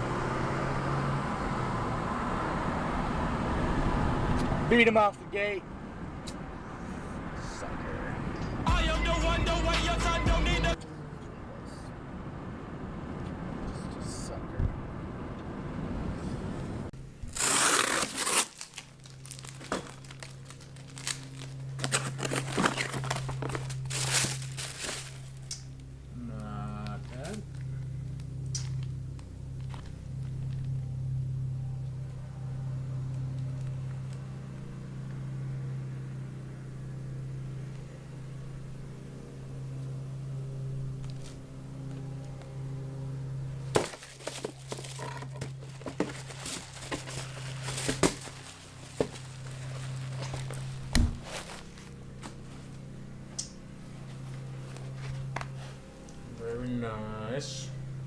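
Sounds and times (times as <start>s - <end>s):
car interior engine and road noise: 0.0s - 17.3s, 18.9s - 58.0s
steady low hum: 0.0s - 58.0s
crinkling and rustling: 17.3s - 25.8s, 43.7s - 53.0s.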